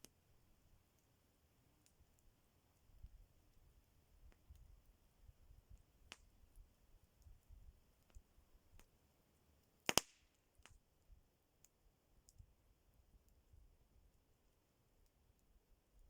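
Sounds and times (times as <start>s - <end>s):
campfire wood crackling: 0.0s - 16.0s
loud sharp fire pop: 9.9s - 10.2s.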